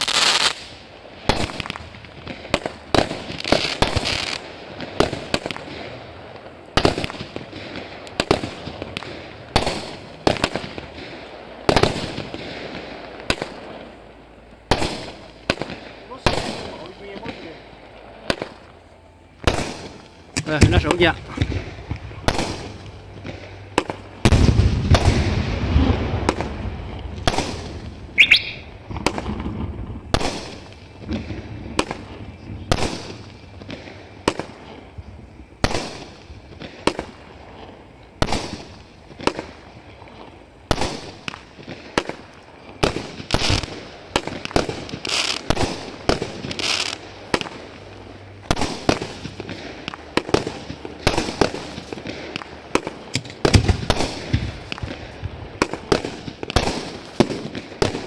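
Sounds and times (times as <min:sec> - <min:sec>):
aerial firework shots and bursts: 0:00.0 - 0:14.0, 0:14.6 - 0:17.6, 0:19.4 - 0:39.7, 0:40.6 - 0:58.0
firework boom with rumble: 0:19.4 - 0:34.6.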